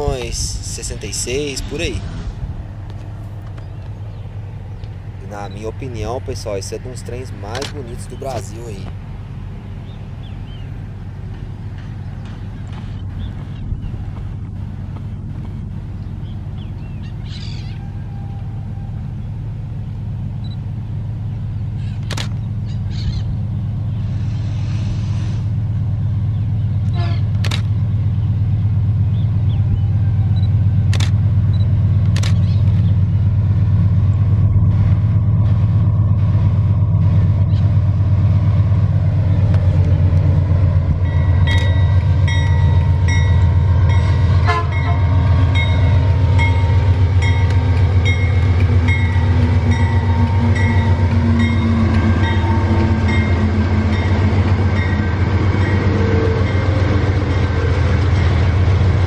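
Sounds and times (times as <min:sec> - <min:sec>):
locomotive engine drone: 0:00.0 - 0:59.0
train wheels clicking on rails: 0:07.2 - 0:09.0, 0:11.2 - 0:15.8, 0:30.7 - 0:59.0.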